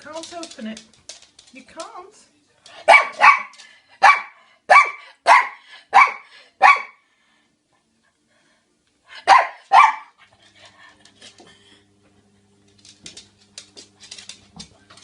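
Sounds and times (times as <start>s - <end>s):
dog barking sharply: 2.9s - 7.0s, 9.3s - 10.1s.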